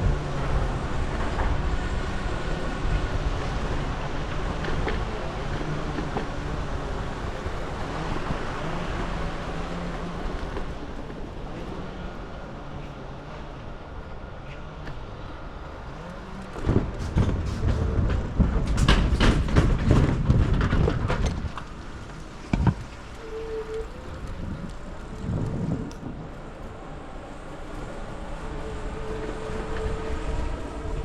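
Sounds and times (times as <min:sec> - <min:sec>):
bicycle rattling over rough path: 0:14.9 - 0:29.2.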